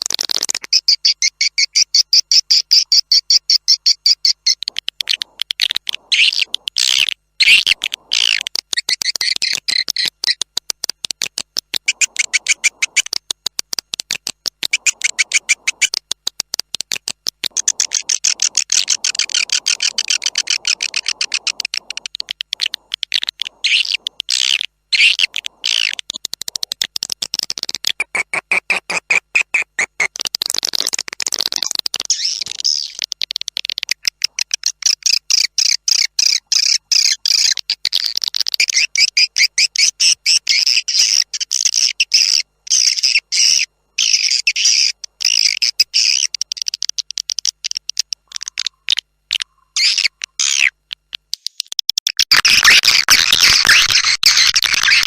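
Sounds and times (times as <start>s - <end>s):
swiftlets twittering: 0.7s - 13.5s, 14.1s - 26.8s.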